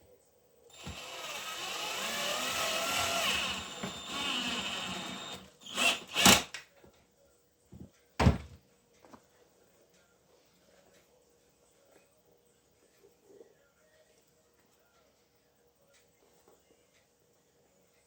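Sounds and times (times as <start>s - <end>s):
small power tool running: 0.7s - 6.5s.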